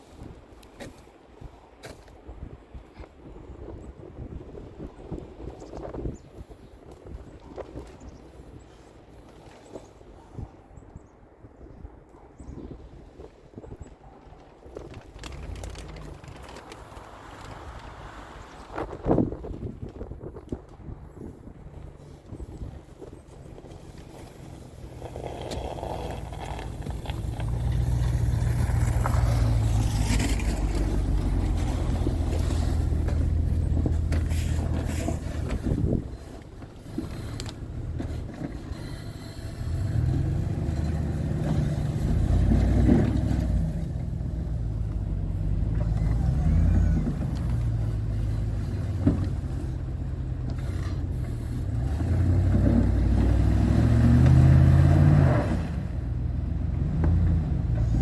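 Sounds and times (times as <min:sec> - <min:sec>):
truck engine revving: 0:24.8 - 0:58.0.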